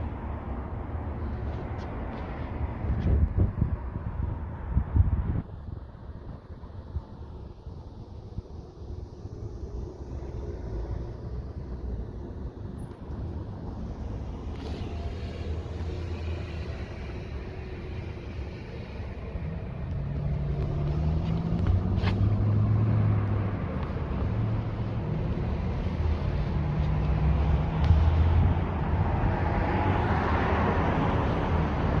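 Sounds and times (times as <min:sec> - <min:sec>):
traffic engine hum: 0:00.0 - 0:32.0
vehicle passing: 0:09.0 - 0:32.0.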